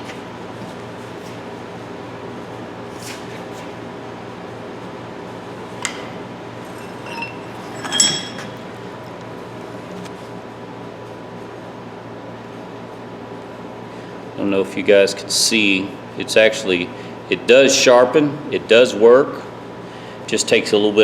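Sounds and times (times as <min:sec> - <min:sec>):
steady low hum: 0:00.0 - 0:10.5
metal tools clinking: 0:05.8 - 0:09.0.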